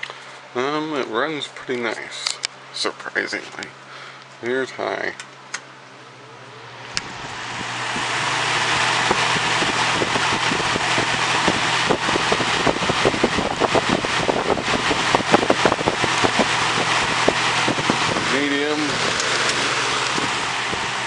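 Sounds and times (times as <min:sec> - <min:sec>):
box fan air rush and motor hum: 0:00.0 - 0:21.0
fan switch click: 0:05.1 - 0:05.7, 0:06.9 - 0:08.1.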